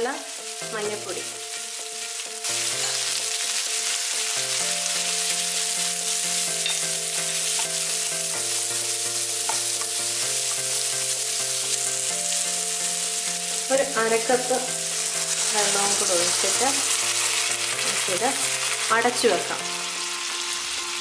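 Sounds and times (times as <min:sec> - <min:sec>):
food sizzling in oil: 0:00.0 - 0:21.0
spatula stirring: 0:00.5 - 0:19.4.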